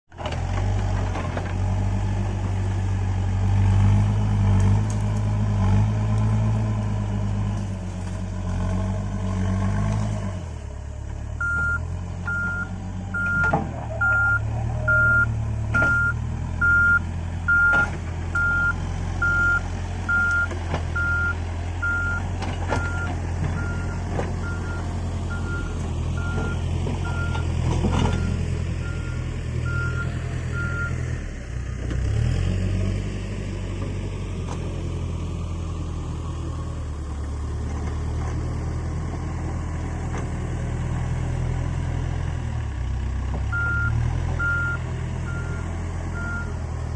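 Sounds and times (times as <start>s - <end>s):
diesel engine running under load: 0.1s - 46.9s
reversing alarm beeping: 11.4s - 22.2s, 22.8s - 27.4s, 28.0s - 31.0s, 43.6s - 46.6s.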